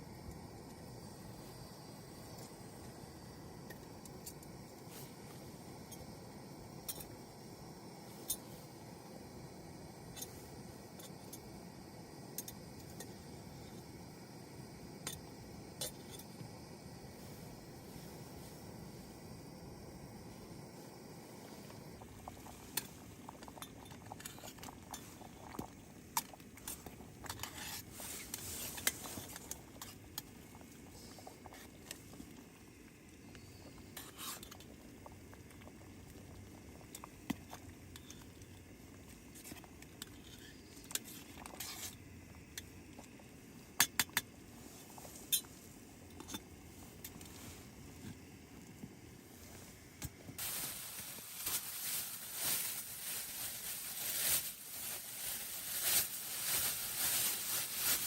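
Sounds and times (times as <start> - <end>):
low steady hiss: 0.0 - 58.0.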